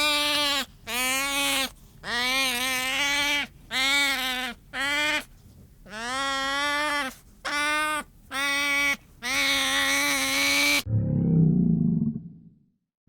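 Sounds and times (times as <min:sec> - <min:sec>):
deep growling roar: 0:10.8 - 0:12.6.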